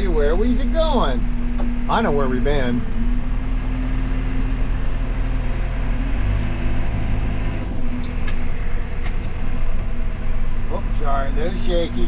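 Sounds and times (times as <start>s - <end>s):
backhoe diesel engine running: 0.0s - 12.0s
short clunks: 8.0s - 9.6s.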